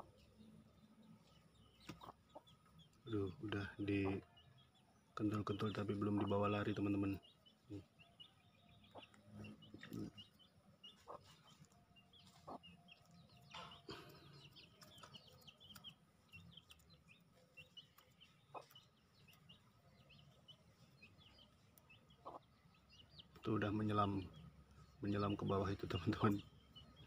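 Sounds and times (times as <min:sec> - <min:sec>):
faint birds chirping: 0:00.0 - 0:27.0.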